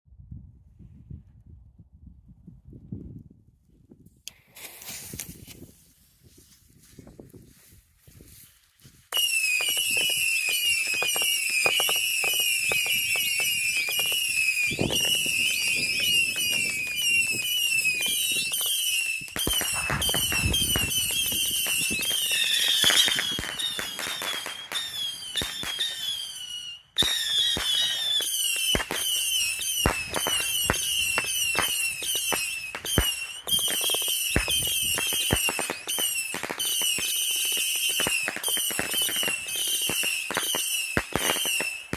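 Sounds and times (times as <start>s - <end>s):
whistling fireworks missiles: 8.9s - 41.9s.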